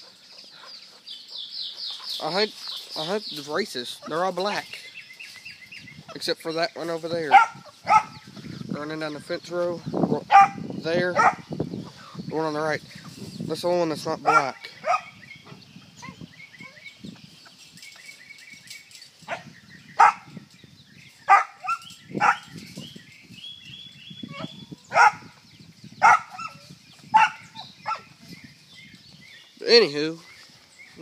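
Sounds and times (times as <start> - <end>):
dog barking: 7.3 - 8.2, 10.3 - 10.6, 11.2 - 11.4, 14.3 - 15.2, 20.0 - 20.3, 21.3 - 22.4, 24.9 - 25.2, 26.0 - 26.6, 27.2 - 28.1
faint high chirping: 14.8 - 31.0.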